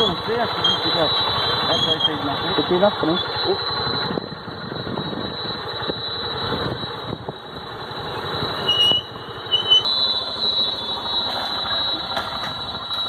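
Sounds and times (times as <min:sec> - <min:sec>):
vehicle engine and road noise: 0:00.0 - 0:13.0
brief high squeal: 0:08.6 - 0:13.0.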